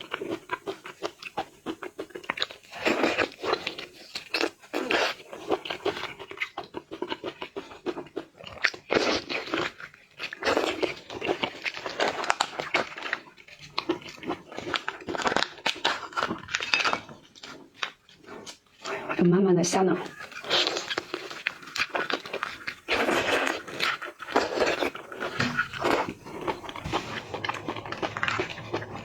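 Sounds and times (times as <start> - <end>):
person chewing seafood: 0.0 - 19.2, 20.0 - 29.0.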